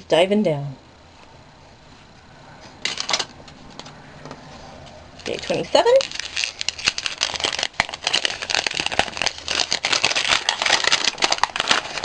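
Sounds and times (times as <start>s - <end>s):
wrapping crinkling and rustling: 4.6s - 12.0s.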